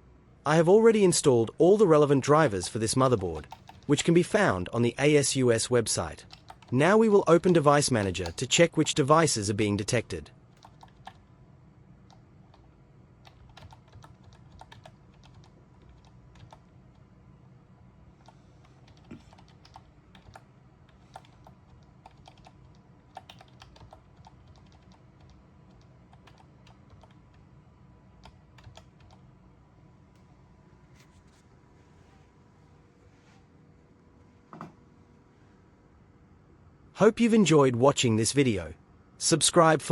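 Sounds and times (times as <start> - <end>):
faint low hum: 0.0 - 39.9
computer keys typing: 2.3 - 4.7, 6.1 - 9.0, 10.5 - 11.3, 12.0 - 17.0, 18.2 - 27.5, 28.1 - 29.3.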